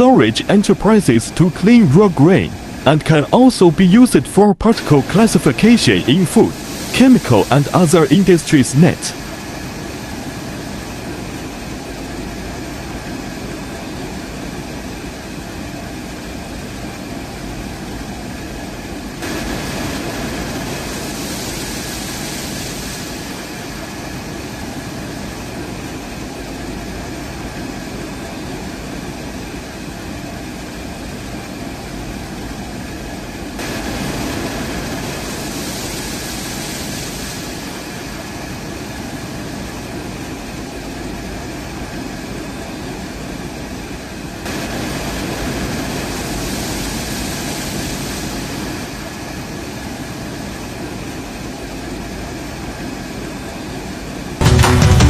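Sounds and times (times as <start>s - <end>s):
faint whine: 0.0s - 51.8s
hiss: 19.2s - 23.6s, 33.6s - 38.4s, 44.5s - 49.0s.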